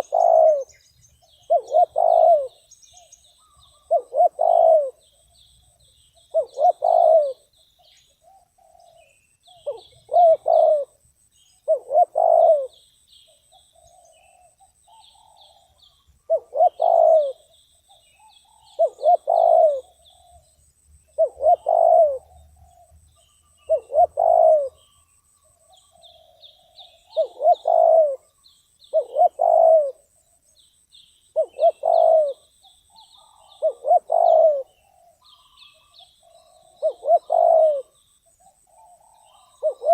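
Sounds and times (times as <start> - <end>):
dove cooing: 0.0 - 7.5, 8.2 - 11.0, 11.6 - 12.8, 13.4 - 20.5, 21.1 - 30.5, 31.3 - 39.9
faint high chirping: 0.0 - 39.9.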